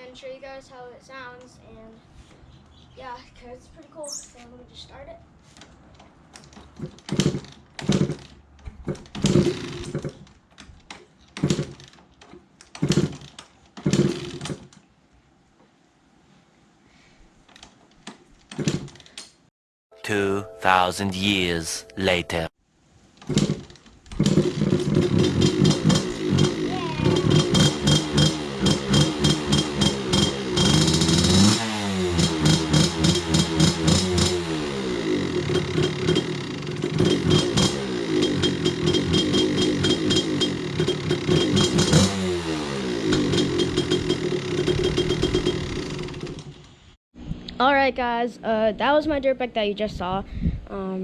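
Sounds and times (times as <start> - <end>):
dirt bike engine revving: 9.2 - 10.1, 24.2 - 46.4.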